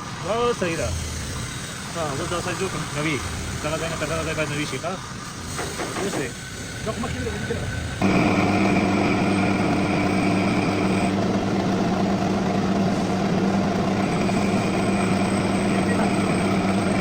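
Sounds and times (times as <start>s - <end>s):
metal lathe running: 6.8s - 17.0s
high machine tone: 8.0s - 17.0s.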